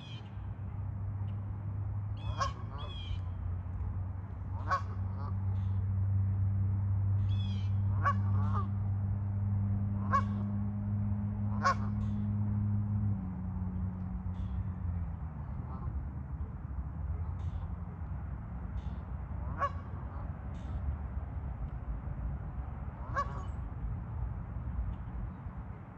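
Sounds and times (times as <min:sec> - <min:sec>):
geese honking: 0:02.2 - 0:03.2, 0:04.5 - 0:05.4, 0:07.3 - 0:08.8, 0:10.0 - 0:10.5, 0:11.5 - 0:12.1, 0:18.8 - 0:20.3, 0:23.0 - 0:23.6.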